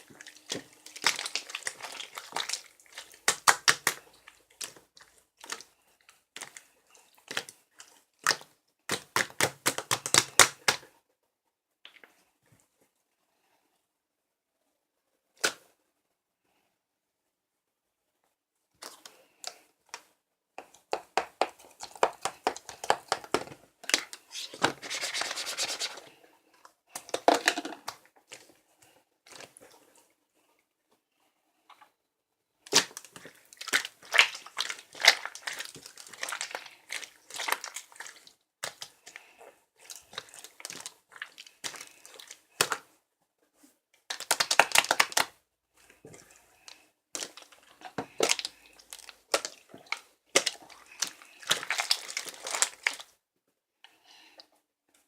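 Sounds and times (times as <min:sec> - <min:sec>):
crinkling handling noise: 0:00.0 - 0:10.8, 0:18.8 - 0:30.1, 0:32.7 - 0:53.2.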